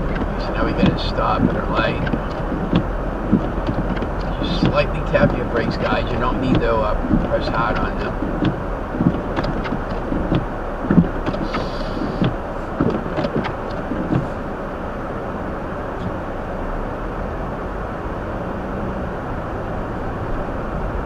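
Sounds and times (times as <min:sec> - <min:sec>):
soft low thumps: 0:00.0 - 0:14.6
car cabin noise: 0:00.0 - 0:21.0.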